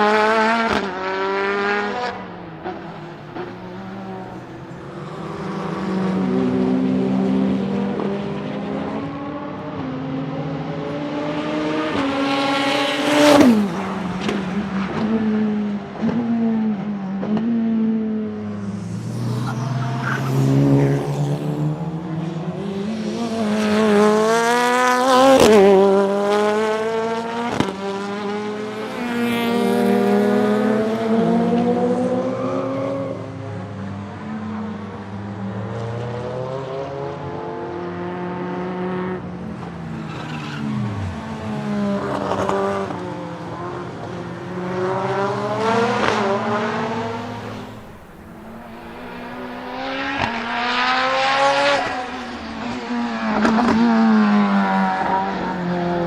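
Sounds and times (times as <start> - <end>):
race car engine revving: 18.1 - 32.3, 44.7 - 56.0.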